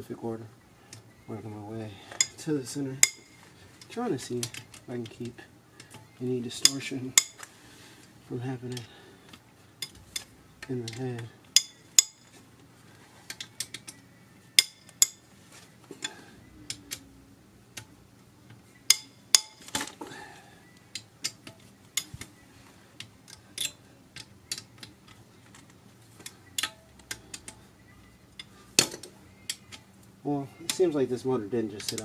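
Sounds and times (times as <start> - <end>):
metallic clicks and clinks of tools: 23.0 - 27.6, 31.8 - 32.0.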